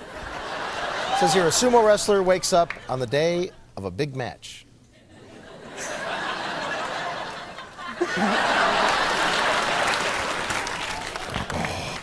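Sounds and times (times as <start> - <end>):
audience laughing: 0.0 - 3.6, 5.0 - 11.6
audience applauding: 6.6 - 12.0.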